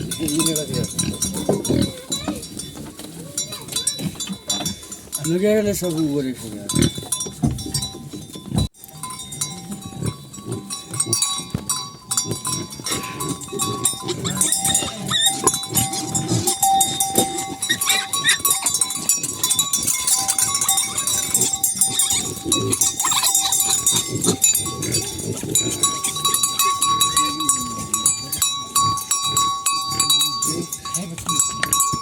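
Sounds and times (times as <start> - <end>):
bell-like ringing tones: 0.0 - 32.0
livestock calling: 10.0 - 32.0.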